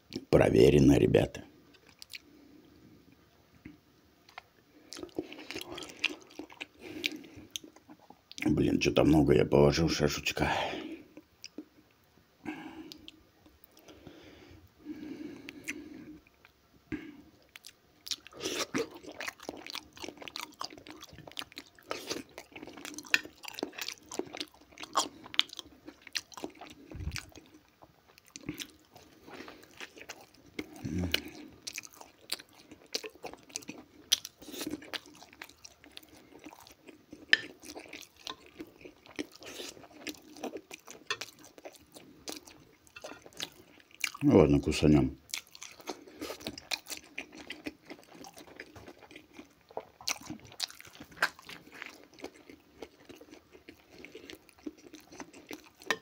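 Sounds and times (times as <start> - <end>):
wet chewing and smacking: 1.7 - 2.3, 4.3 - 8.5, 17.4 - 44.2, 45.3 - 56.0.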